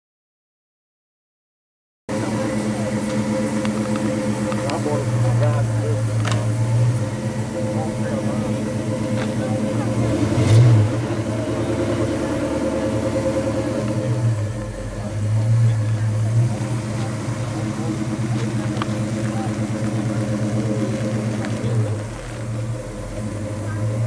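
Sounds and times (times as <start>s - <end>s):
car engine running at low speed: 2.1s - 24.0s.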